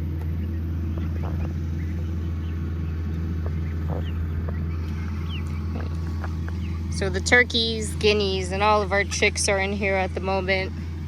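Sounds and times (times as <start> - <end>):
distant lawn mower engine: 0.0 - 11.0
faint bird chirps: 0.3 - 6.9.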